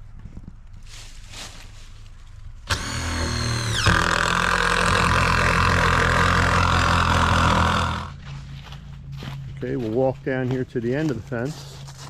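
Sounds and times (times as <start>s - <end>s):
impact driver driving screw into wood: 2.7s - 8.1s.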